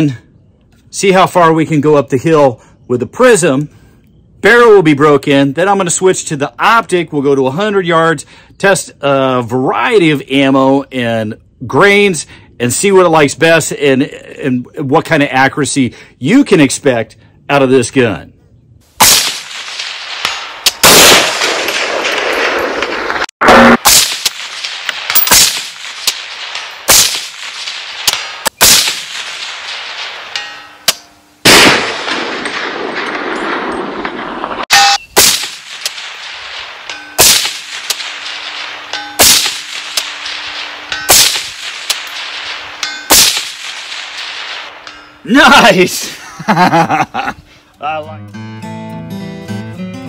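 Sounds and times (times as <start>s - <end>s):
rifle shots with echo: 19.0s - 34.6s, 35.2s - 45.0s.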